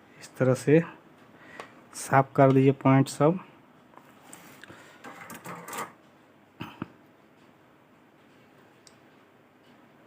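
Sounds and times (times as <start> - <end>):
scraping on circuit board: 4.3 - 6.0.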